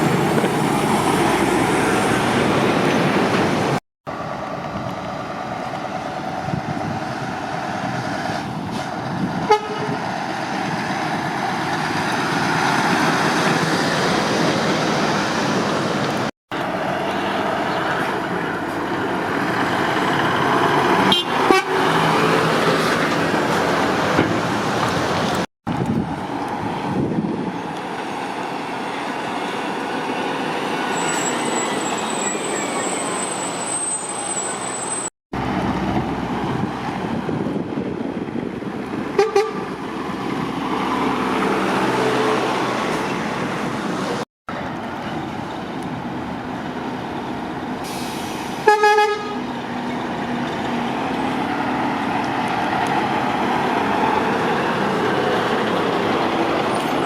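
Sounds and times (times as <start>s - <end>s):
diesel engine and road noise: 0.0s - 57.0s
heavy lorries passing: 0.0s - 57.0s
truck air horn toots: 9.5s - 10.0s, 21.0s - 21.9s, 39.2s - 39.7s, 47.9s - 49.5s.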